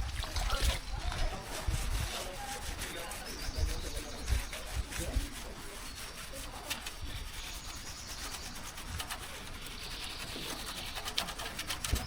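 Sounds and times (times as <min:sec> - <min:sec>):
rough rubbing: 0:00.0 - 0:12.0.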